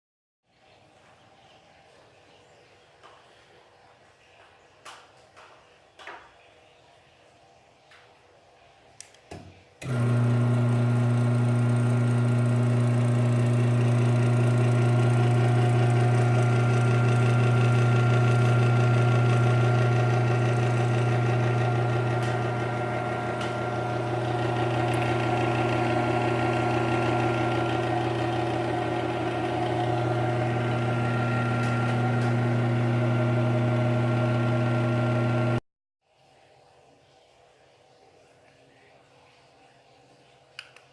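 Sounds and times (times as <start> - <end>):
garage door motor humming: 9.8 - 35.6.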